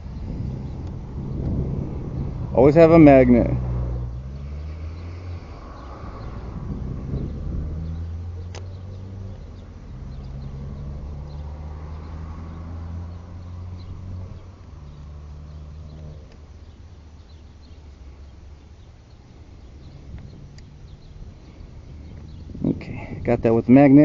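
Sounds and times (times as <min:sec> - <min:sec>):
vehicle engine humming: 0:00.0 - 0:24.0
faint bird chirps: 0:04.1 - 0:23.2.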